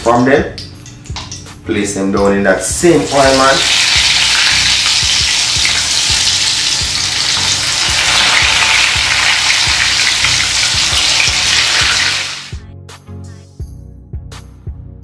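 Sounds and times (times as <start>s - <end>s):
bread deep-frying in oil: 2.8s - 12.5s
oil crackles: 3.2s - 12.5s.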